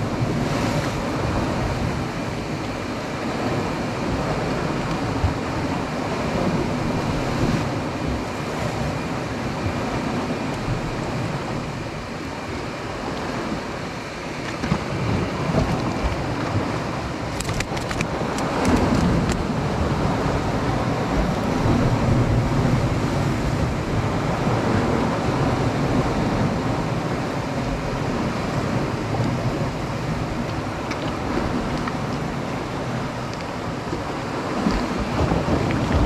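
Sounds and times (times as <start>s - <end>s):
sea waves washing against rocks: 0.0s - 36.0s
wind buffeting microphone: 0.0s - 36.0s
small clicks: 17.3s - 19.4s.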